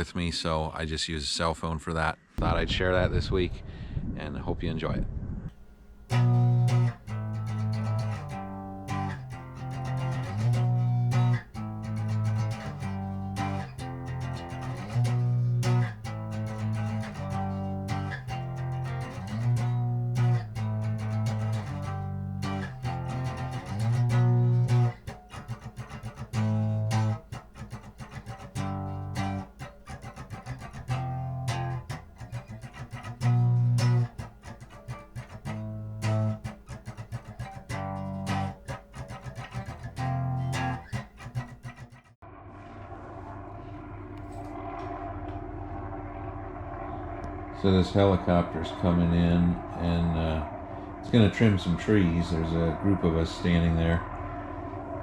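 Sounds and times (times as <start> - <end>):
plucked guitar: 5.5 - 42.2
bass line: 5.6 - 41.9.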